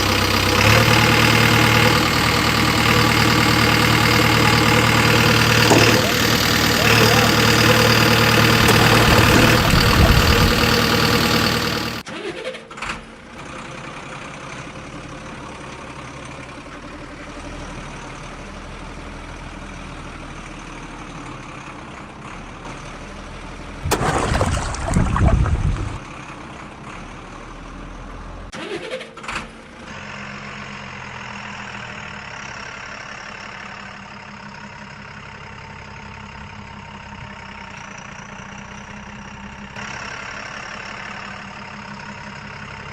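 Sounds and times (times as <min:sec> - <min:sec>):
heavy machinery engines running: 0:00.0 - 0:12.1.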